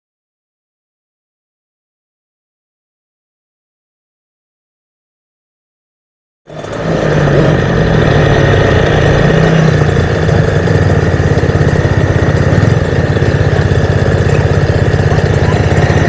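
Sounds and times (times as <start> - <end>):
motorbike engine idling: 6.5 - 16.0.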